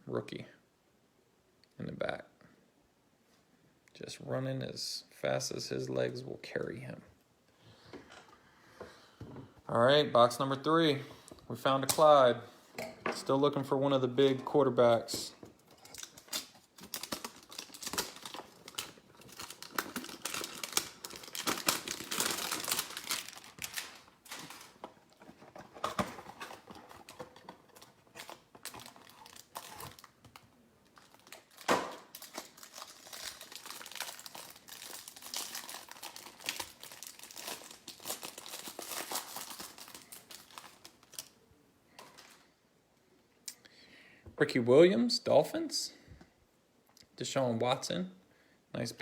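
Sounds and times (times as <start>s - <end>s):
plastic wrapping crinkling: 15.6s - 41.4s.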